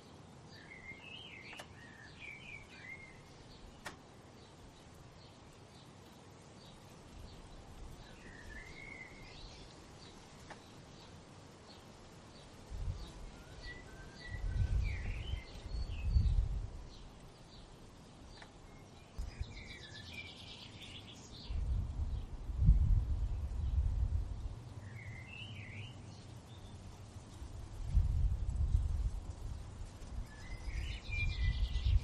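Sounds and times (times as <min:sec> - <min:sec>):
songbirds chirping and singing: 0:00.0 - 0:32.0
wind rumbling on microphone: 0:12.3 - 0:32.0.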